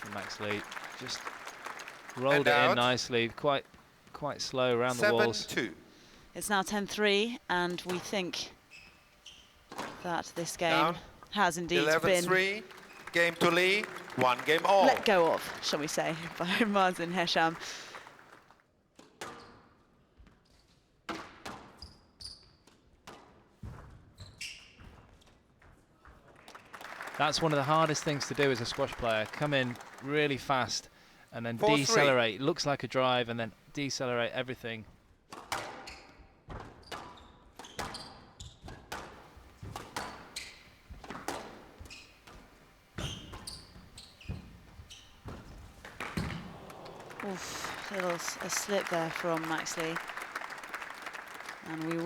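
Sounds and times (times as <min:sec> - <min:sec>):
shoe squeaks on court floor: 0:08.7 - 0:10.0, 0:21.7 - 0:22.7, 0:24.1 - 0:25.1, 0:35.8 - 0:38.8, 0:40.0 - 0:42.4, 0:43.0 - 0:45.7
squash ball cracking off rackets: 0:45.8 - 0:47.2.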